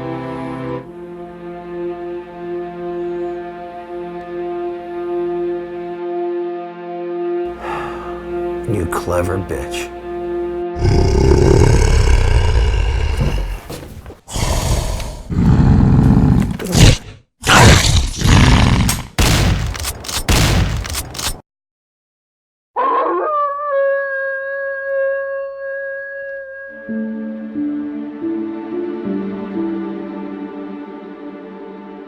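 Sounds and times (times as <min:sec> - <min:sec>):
creature roaring and snarling: 0:10.8 - 0:19.7.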